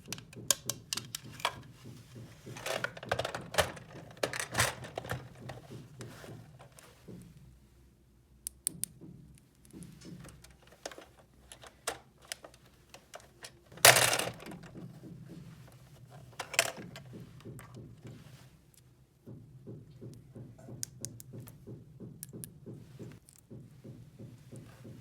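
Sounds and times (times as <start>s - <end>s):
plastic pieces rattling: 2.6s - 5.7s, 10.4s - 14.8s, 16.2s - 17.1s
plastic toy pieces clicking: 10.9s - 14.7s.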